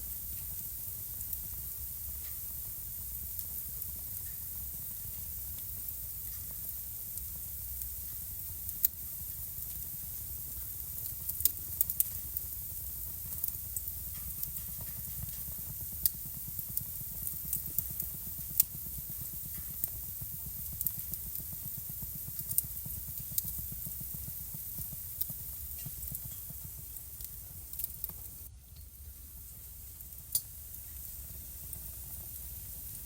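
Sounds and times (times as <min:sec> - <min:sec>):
hiss and rumble of flames: 0:00.0 - 0:33.0
wood fire crackling and popping: 0:00.0 - 0:33.0.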